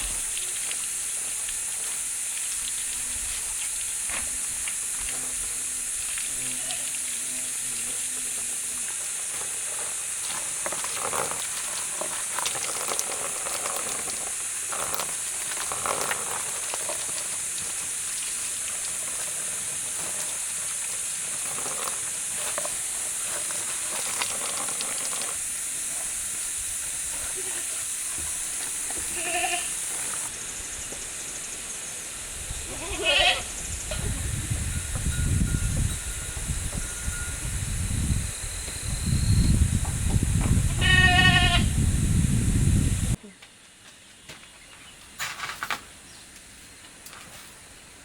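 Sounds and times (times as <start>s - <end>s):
steady high hiss: 0.0s - 10.7s, 16.2s - 44.1s.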